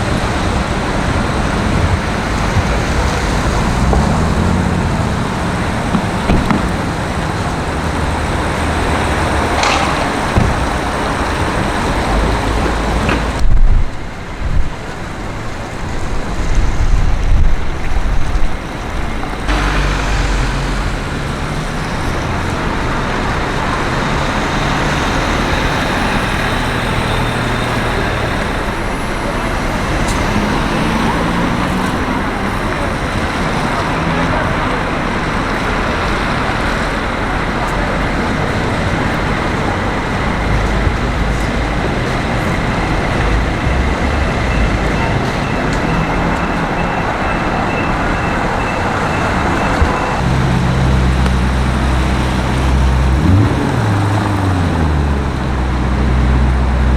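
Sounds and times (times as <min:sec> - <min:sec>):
vehicles passing: 0:00.0 - 0:56.9
loud low rumble: 0:19.3 - 0:23.2.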